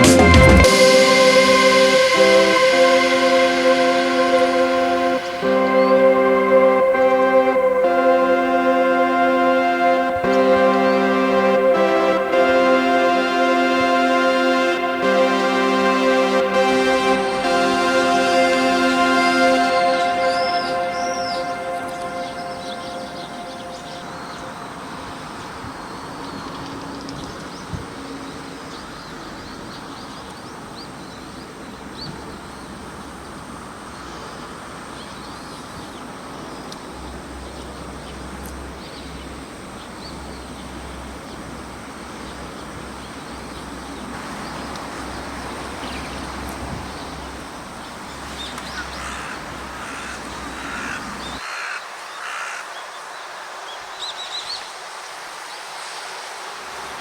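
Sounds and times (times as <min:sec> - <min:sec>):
bird calling: 0:48.4 - 0:52.7.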